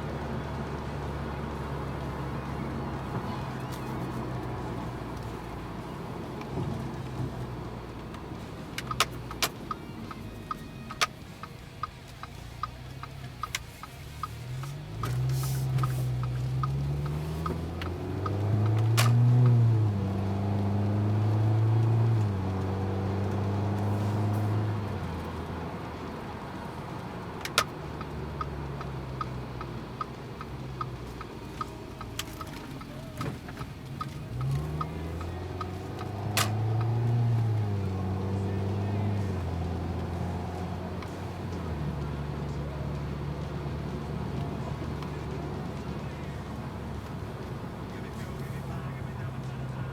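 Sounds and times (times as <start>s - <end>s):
car engine and exhaust: 0.0s - 49.9s
light ticking: 2.0s - 49.9s
sharp clicks: 7.9s - 22.7s, 27.2s - 43.5s.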